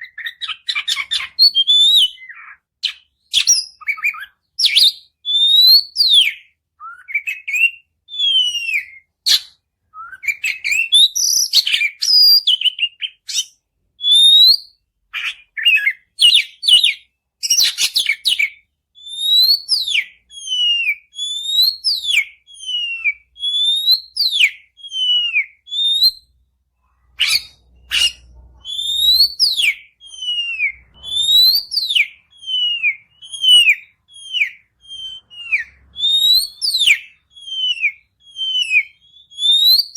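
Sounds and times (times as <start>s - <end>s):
songbird whistling and clicking: 0.0s - 26.3s, 27.2s - 39.9s.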